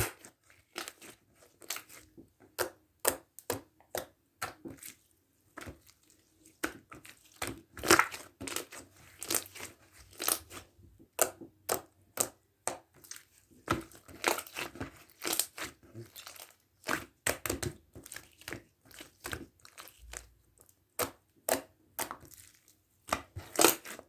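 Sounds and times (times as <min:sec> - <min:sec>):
slime crackling and popping: 0:14.2 - 0:15.6.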